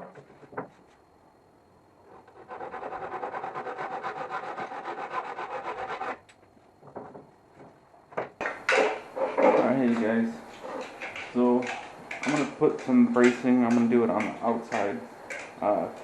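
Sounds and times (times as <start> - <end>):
tool rasping wood: 2.3 - 6.2.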